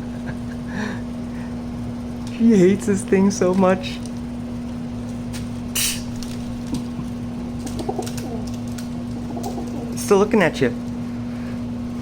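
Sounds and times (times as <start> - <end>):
steady low hum: 0.0 - 12.0
pigeon cooing: 6.8 - 10.0.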